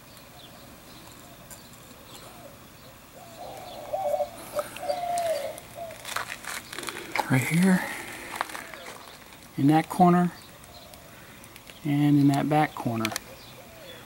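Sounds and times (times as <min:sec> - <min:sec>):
faint background hiss: 0:00.0 - 0:14.0
dove cooing: 0:00.3 - 0:09.3, 0:13.2 - 0:14.0.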